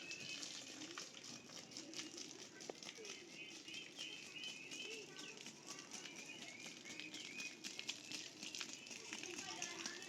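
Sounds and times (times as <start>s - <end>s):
birds chirping: 3.1s - 9.4s.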